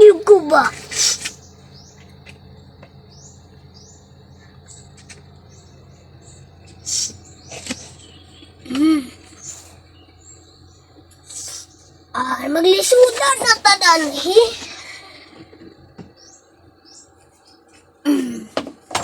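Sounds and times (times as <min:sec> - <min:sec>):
small birds chirping: 0:00.0 - 0:18.7.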